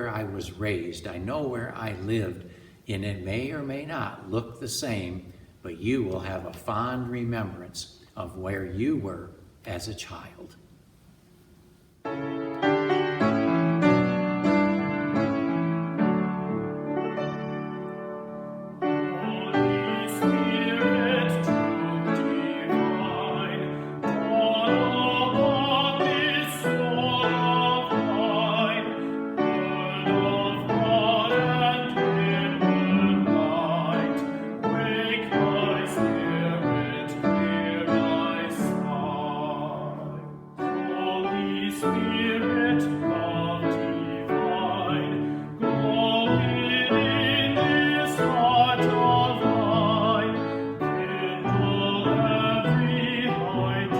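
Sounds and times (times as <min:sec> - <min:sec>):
singer breathing: 0:02.4 - 0:02.9, 0:29.0 - 0:29.3, 0:45.2 - 0:45.6
piano accompaniment: 0:12.0 - 0:53.9
person singing with vibrato: 0:17.1 - 0:53.9.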